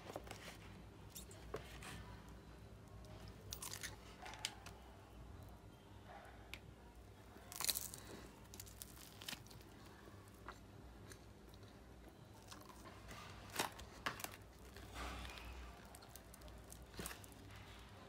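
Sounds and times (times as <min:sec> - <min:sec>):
crunchy bites and chewing: 0:03.1 - 0:04.8, 0:07.2 - 0:18.0.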